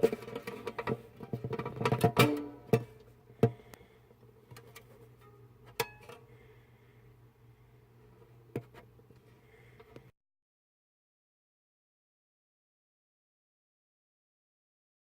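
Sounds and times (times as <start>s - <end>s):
steady low hum: 0.0s - 10.1s.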